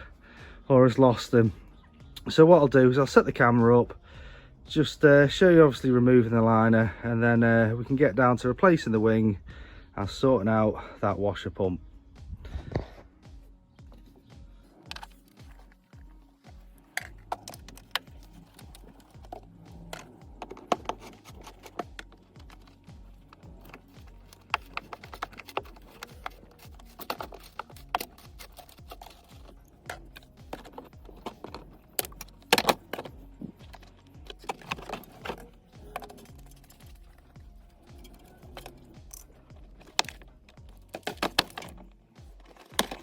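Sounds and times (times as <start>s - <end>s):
music with low beat: 11.5s - 43.0s
hand tools clicking and rattling: 13.9s - 43.0s.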